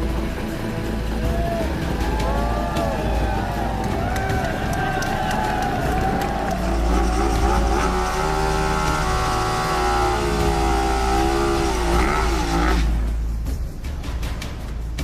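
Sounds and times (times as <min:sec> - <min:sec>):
racing motorcycle engine revving: 0:04.4 - 0:13.1.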